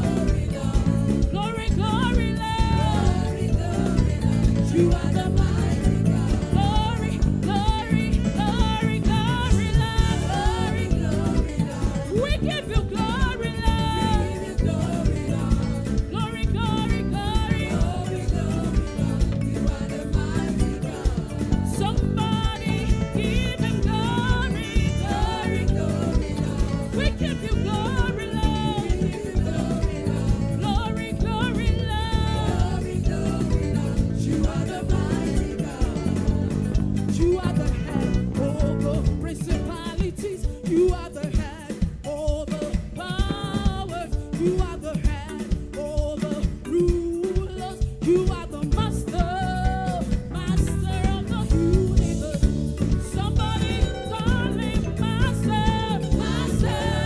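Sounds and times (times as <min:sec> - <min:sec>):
choir singing: 0:00.0 - 0:39.8, 0:51.6 - 0:57.0
drum kit: 0:00.0 - 0:57.0
guitar playing upbeat groove: 0:00.0 - 0:57.0.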